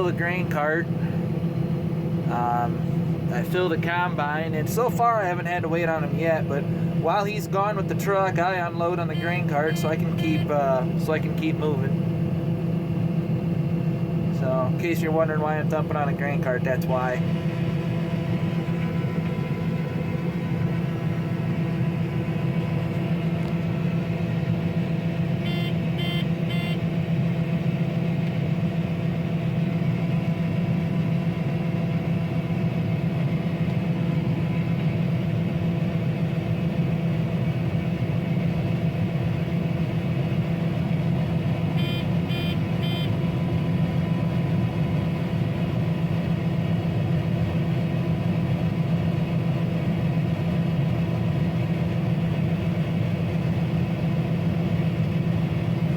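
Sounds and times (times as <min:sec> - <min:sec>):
combine harvester engine drone: 0:00.0 - 0:55.9
short electronic beeps: 0:25.5 - 0:26.8, 0:41.8 - 0:43.2.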